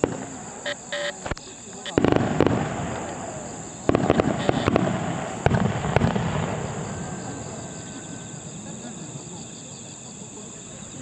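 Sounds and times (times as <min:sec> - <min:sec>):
sharp firework cracks: 0:00.0 - 0:07.6
firework shells banging: 0:01.3 - 0:07.6.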